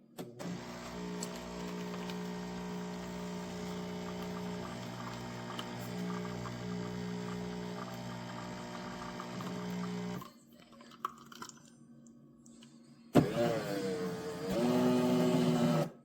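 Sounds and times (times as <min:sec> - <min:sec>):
espresso machine pump humming: 0:00.4 - 0:10.2.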